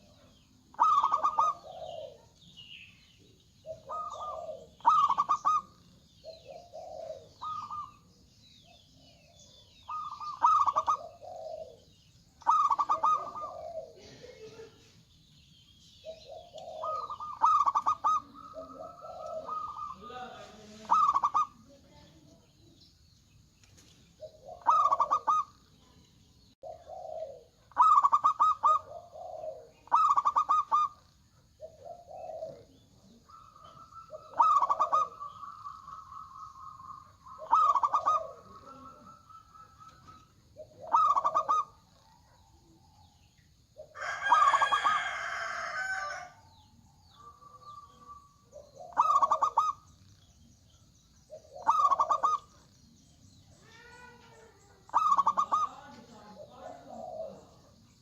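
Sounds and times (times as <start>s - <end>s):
doves cooing and trilling: 0.0s - 58.0s
rooster crowing: 43.9s - 46.5s.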